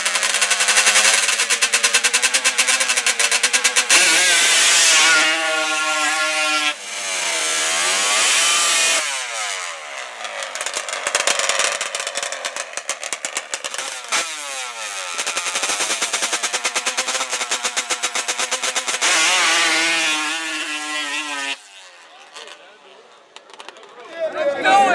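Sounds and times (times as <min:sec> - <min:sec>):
engine idling putter: 0:00.0 - 0:04.2
atv engines revving high: 0:00.0 - 0:23.7.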